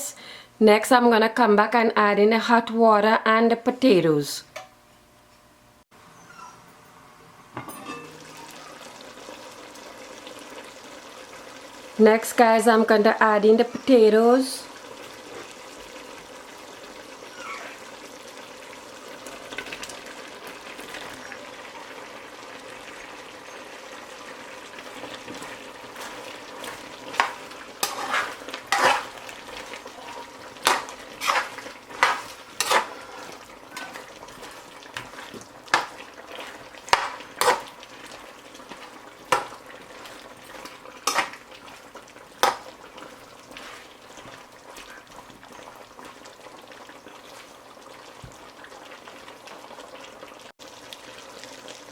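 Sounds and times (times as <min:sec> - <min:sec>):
spoon knocking against pot: 0:07.6 - 0:08.3
chicken frying in oil: 0:08.0 - 0:51.9.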